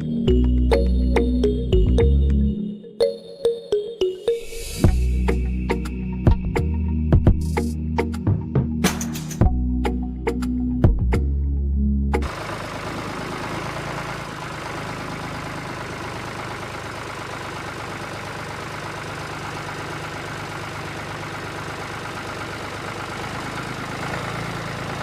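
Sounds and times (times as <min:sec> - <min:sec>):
small engine running: 0:12.2 - 0:25.0.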